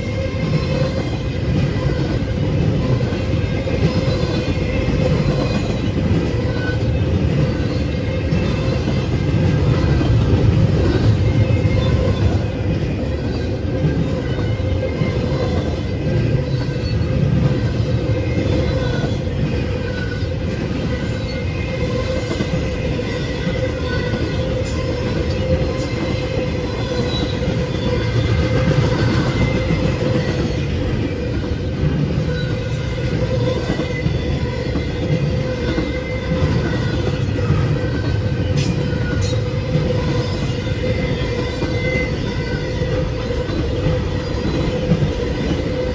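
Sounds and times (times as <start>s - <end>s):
train wheels rumbling on rail: 0.0s - 45.9s
faint high wheel squeal: 17.8s - 30.6s.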